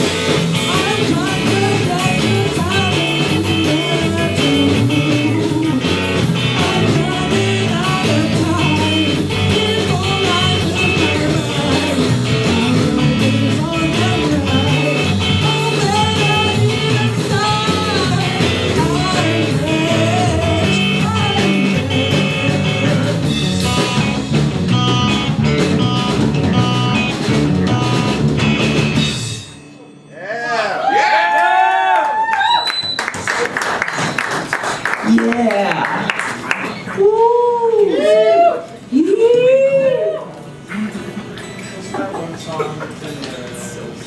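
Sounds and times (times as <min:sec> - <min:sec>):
live rock band playing: 0:00.0 - 0:30.1.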